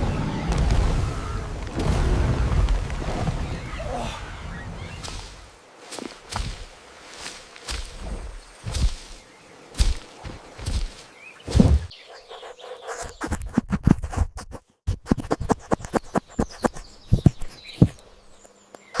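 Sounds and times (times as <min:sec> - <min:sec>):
sharp knocks and thuds: 0:07.7 - 0:09.2, 0:09.8 - 0:12.0, 0:13.3 - 0:18.1.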